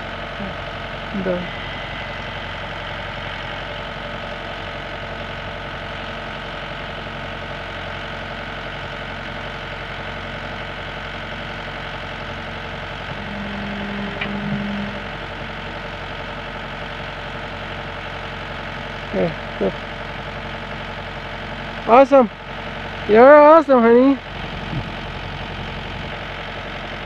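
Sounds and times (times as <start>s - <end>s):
excavator diesel engine idling: 0.0s - 27.0s
short louder hum: 13.0s - 16.0s.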